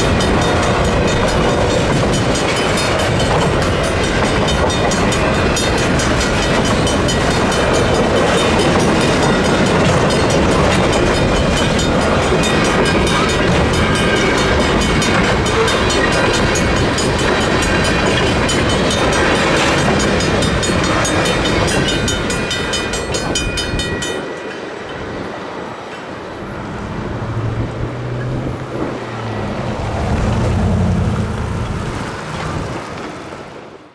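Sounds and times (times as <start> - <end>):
train wheels clattering: 0.0 - 29.5
crossing bell ringing rapidly: 0.0 - 29.6
low engine hum: 26.3 - 33.9.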